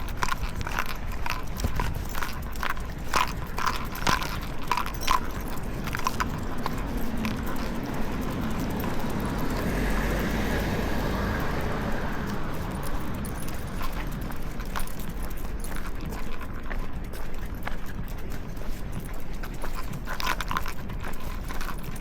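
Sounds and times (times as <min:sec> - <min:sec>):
car passing: 0:00.0 - 0:15.6
light metal jingles and clicks: 0:00.0 - 0:22.0.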